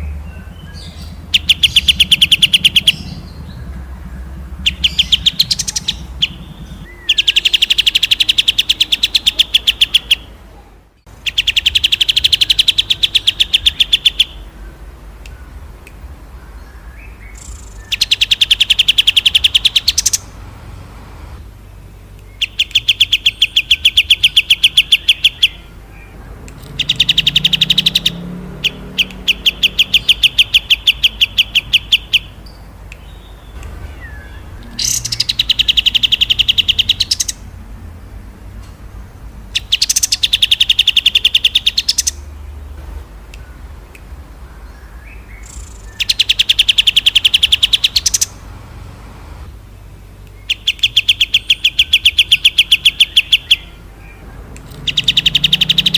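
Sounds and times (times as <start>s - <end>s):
songbird rattling trills: 0.0s - 10.4s, 11.1s - 15.6s, 16.2s - 21.0s, 22.0s - 42.5s, 44.5s - 48.9s.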